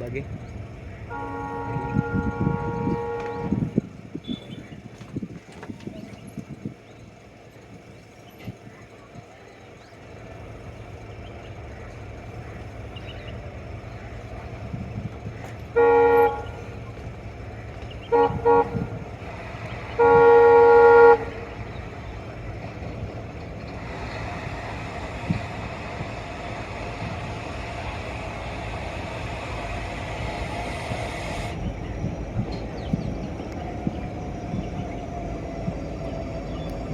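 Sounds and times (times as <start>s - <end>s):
train running noise: 0.0s - 36.9s
locomotive horn blasts: 0.9s - 4.7s, 14.2s - 32.2s.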